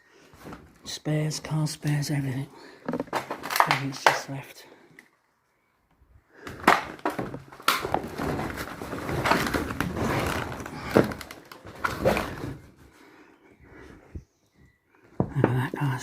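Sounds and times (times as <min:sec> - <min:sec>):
dense rustle: 0:07.9 - 0:13.0.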